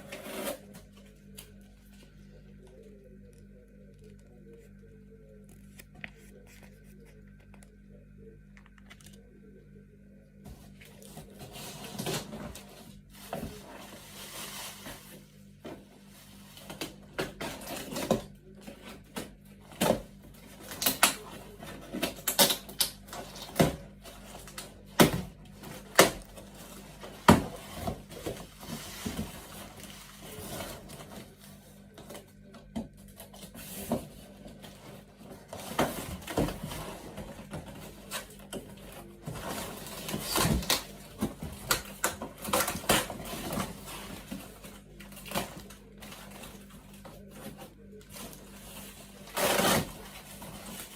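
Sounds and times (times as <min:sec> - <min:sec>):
objects and packaging being handled: 0:00.0 - 0:09.3, 0:10.5 - 0:50.9
steady low hum: 0:00.0 - 0:22.3.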